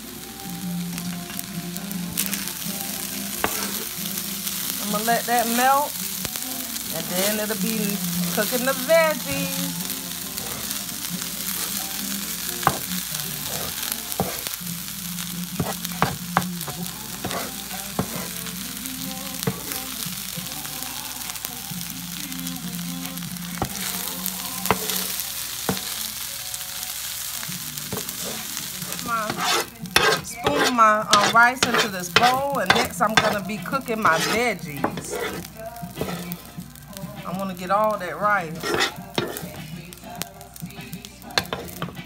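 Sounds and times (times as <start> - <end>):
rice sizzling on griddle: 0.0 - 42.0
spatula tapping and scraping griddle: 3.3 - 4.0, 8.4 - 14.6, 15.6 - 18.5, 19.4 - 20.0, 23.6 - 26.0, 27.8 - 37.3, 38.5 - 42.0.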